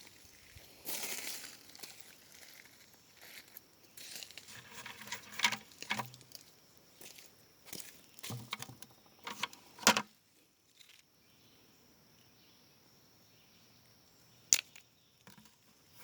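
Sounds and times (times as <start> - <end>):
crunching on dry forest litter: 0.0 - 8.4.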